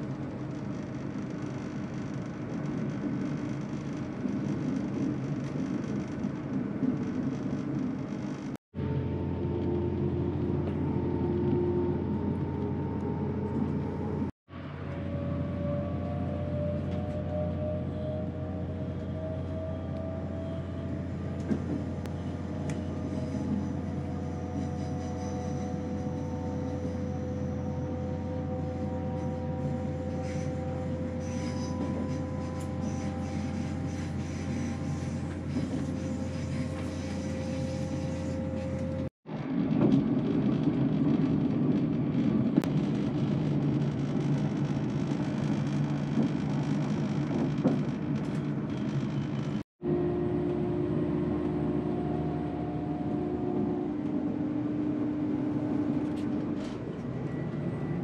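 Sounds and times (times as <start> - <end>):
mechanical whine: 0.0 - 58.0
train rumble: 0.0 - 58.0.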